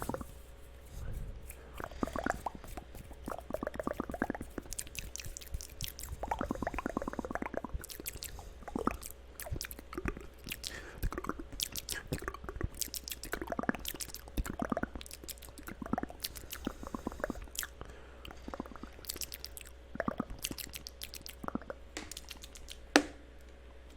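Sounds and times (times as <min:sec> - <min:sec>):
wet mouth clicks and smacks: 0:01.4 - 0:23.2.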